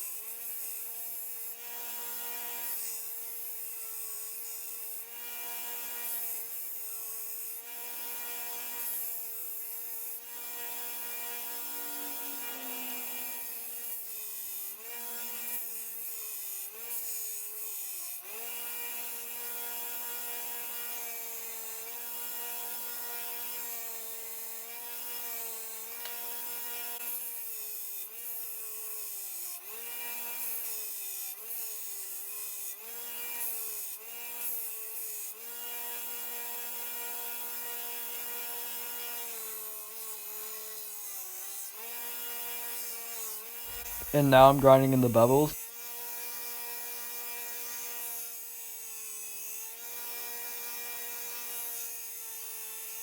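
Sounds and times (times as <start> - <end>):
belt grinder motor whine: 10.8 - 13.6.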